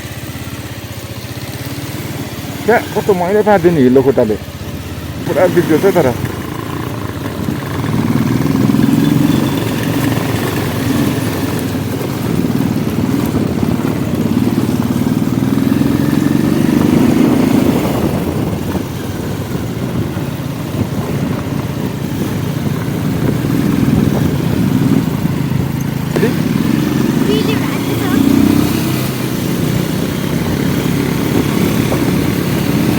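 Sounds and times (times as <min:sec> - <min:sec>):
motorcycle engine running: 0:00.0 - 0:32.9.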